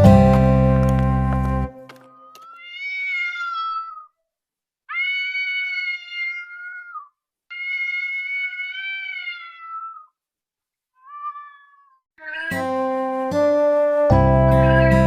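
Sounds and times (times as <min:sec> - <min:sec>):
cat meowing: 0:02.1 - 0:04.2, 0:04.9 - 0:10.2, 0:11.0 - 0:12.8.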